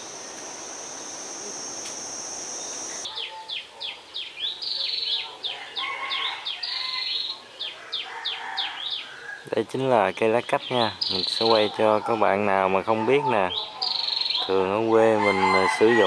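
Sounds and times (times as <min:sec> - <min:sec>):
cricket trilling: 0:00.0 - 0:03.1
bird chirping: 0:00.0 - 0:05.5, 0:10.2 - 0:12.3, 0:13.4 - 0:14.5
background noise: 0:00.0 - 0:16.0.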